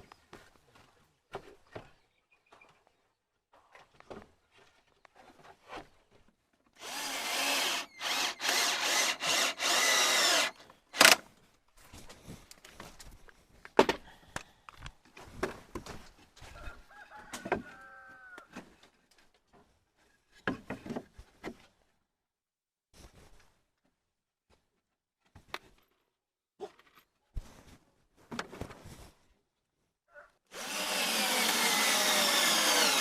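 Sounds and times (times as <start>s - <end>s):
power drill driving screws: 6.8s - 11.2s, 30.5s - 33.0s.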